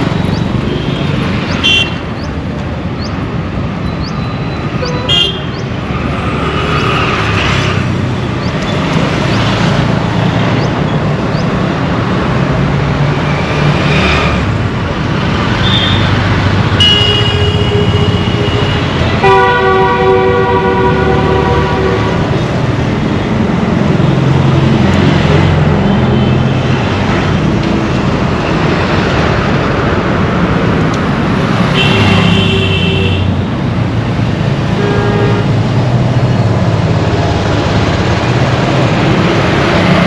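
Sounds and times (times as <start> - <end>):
road traffic engines: 0.0 - 40.0
vehicle horns honking: 0.7 - 2.0, 4.8 - 5.6, 15.6 - 22.4, 31.7 - 33.4, 34.7 - 35.6.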